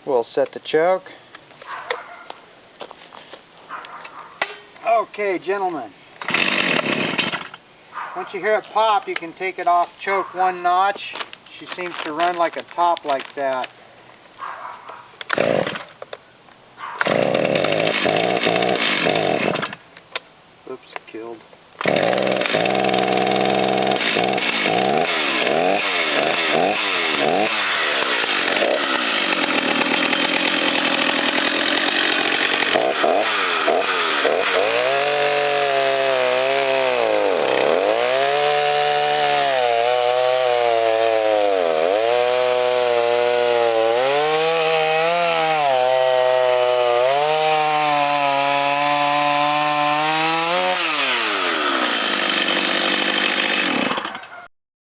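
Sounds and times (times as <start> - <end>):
chainsaw revving and cutting wood: 5.5 - 7.6, 15.3 - 16.0, 16.9 - 19.8, 21.8 - 54.3.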